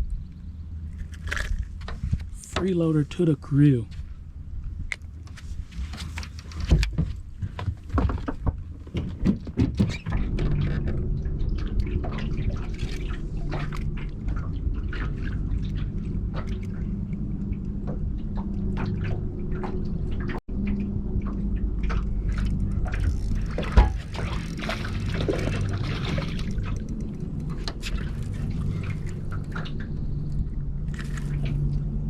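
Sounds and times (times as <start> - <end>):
water pouring and dripping: 6.8 - 32.0
water splashing: 10.0 - 32.0.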